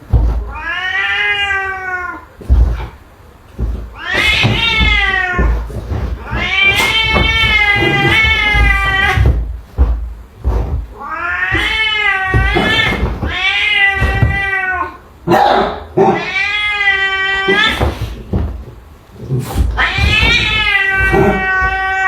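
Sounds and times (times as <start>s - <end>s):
cat yowling: 0.4s - 2.3s, 3.9s - 9.4s, 11.0s - 15.4s, 16.0s - 18.2s, 19.7s - 22.0s.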